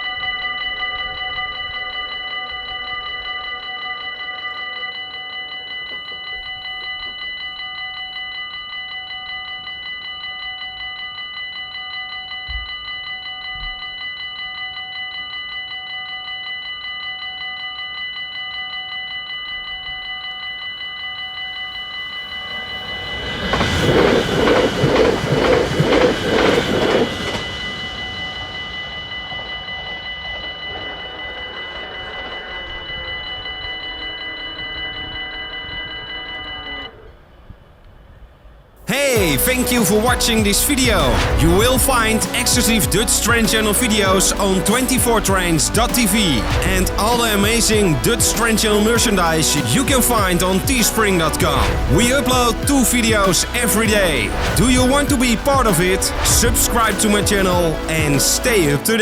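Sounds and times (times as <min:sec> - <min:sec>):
level crossing bells ringing: 0:00.0 - 0:37.1, 0:38.9 - 0:59.0
train passing: 0:21.3 - 0:59.0.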